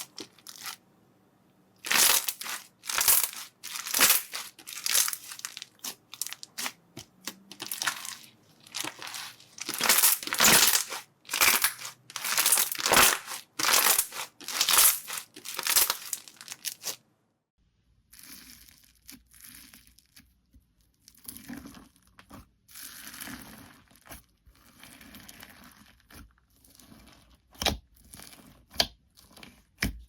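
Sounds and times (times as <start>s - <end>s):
slime squelching bursts: 1.8s - 17.0s.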